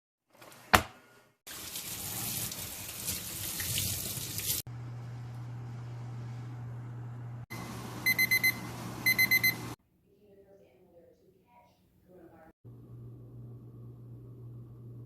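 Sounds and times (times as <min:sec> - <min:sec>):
tap running water into sink: 0:01.5 - 0:04.6.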